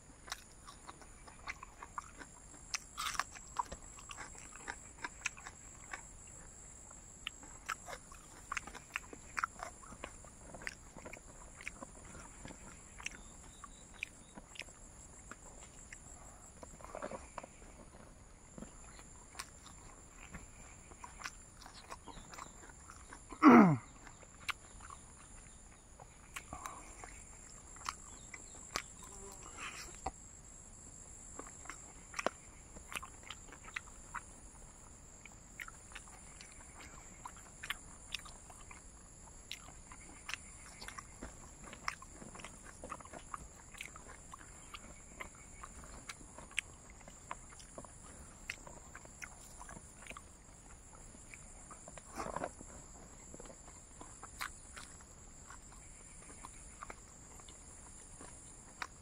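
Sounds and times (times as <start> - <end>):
crunchy chewing: 0.0 - 59.0
mouth clicks and crackles: 35.1 - 59.0.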